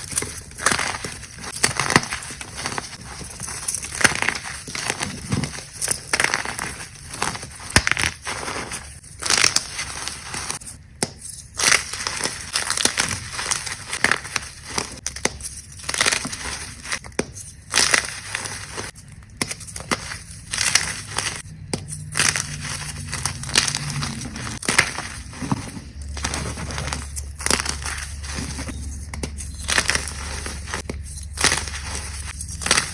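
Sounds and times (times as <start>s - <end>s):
chalk crunching and crumbling: 0.0s - 32.9s.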